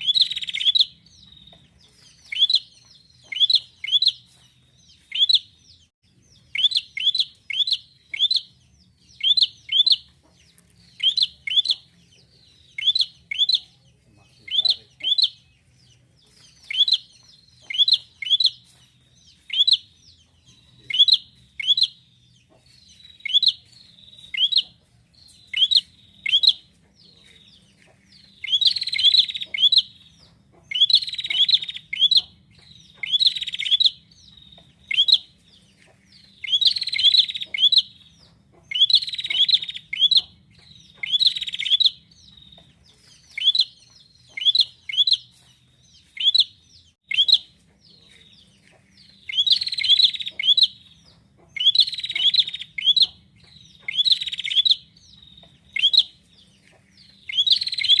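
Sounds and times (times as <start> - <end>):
bird calling with sharp chip notes: 0.0 - 4.4, 28.3 - 35.4, 36.1 - 47.5, 49.2 - 58.0.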